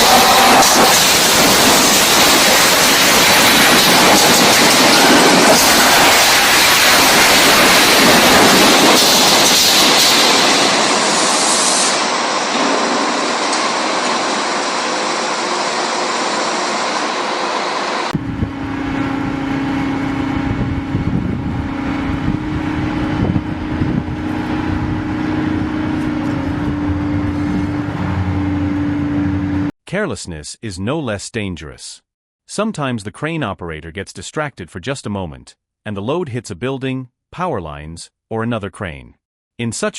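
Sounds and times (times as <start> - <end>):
loud rushing noise: 0.0 - 29.7
machine humming low: 15.1 - 29.7.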